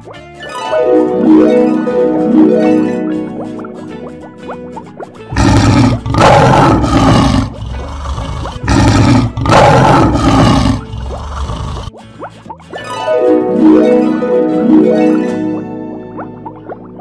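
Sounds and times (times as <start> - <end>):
soft harp music: 0.2 - 5.2, 12.7 - 17.0
lion roaring: 5.3 - 11.9.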